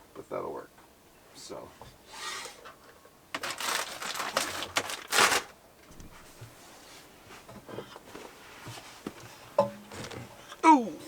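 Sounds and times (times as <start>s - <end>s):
objects rustling and scraping: 1.8s - 10.6s.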